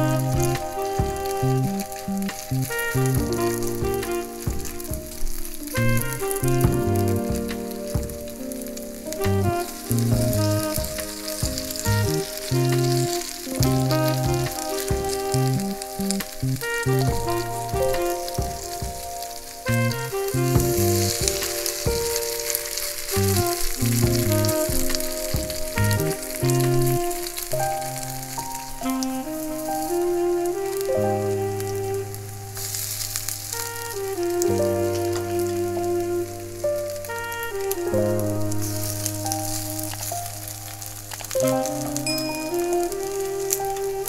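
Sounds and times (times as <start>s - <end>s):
background music with bass: 0.0s - 22.3s, 23.1s - 32.5s
food sizzling in oil: 31.5s - 37.8s, 38.8s - 44.0s.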